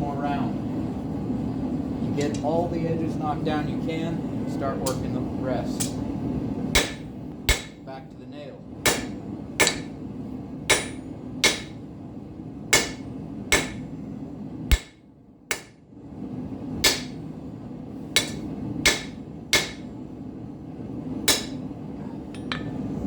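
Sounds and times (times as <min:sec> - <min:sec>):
propane forge roaring: 0:00.0 - 0:23.0
hammer striking steel on anvil: 0:06.8 - 0:07.9, 0:08.8 - 0:10.0, 0:10.7 - 0:11.8, 0:12.8 - 0:13.9, 0:14.7 - 0:15.8, 0:16.8 - 0:17.2, 0:18.2 - 0:19.9, 0:21.3 - 0:21.7, 0:22.4 - 0:22.8.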